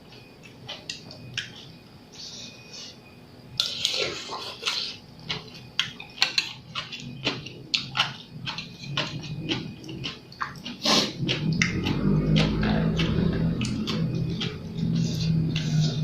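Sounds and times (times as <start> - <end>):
chewing and slurping: 3.6 - 16.0.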